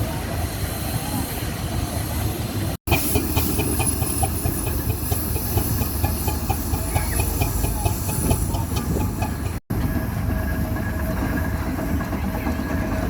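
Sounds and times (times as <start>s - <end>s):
steam engine rumble: 0.0s - 13.0s
steam hissing: 0.0s - 13.0s
fast even engine ticking: 2.9s - 9.6s.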